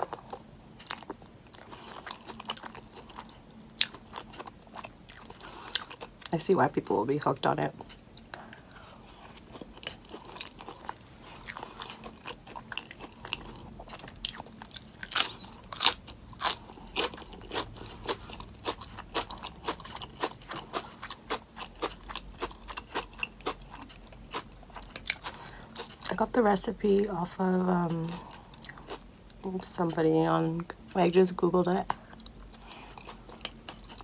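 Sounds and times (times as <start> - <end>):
close chewing crunches: 0.0 - 6.2, 7.8 - 26.2, 31.8 - 34.0.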